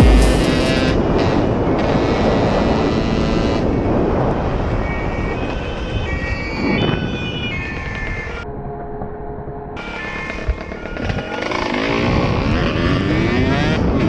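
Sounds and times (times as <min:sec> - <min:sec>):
motorcycle engine running: 0:00.0 - 0:01.1.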